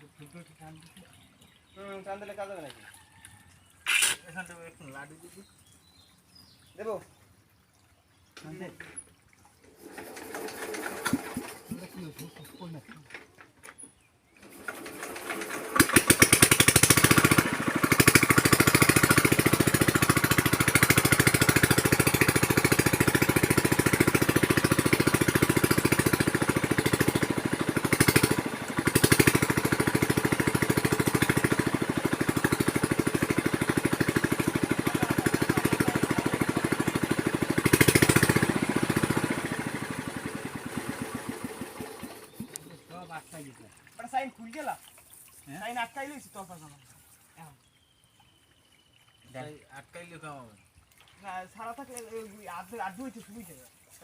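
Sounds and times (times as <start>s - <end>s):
small engine running: 9.7s - 12.7s, 14.4s - 43.2s.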